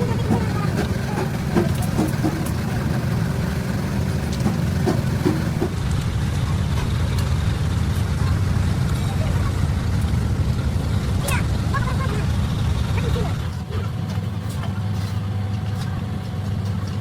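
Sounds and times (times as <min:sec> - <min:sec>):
voices: 0:00.0 - 0:07.2, 0:08.0 - 0:17.0
large engine idling: 0:00.0 - 0:17.0.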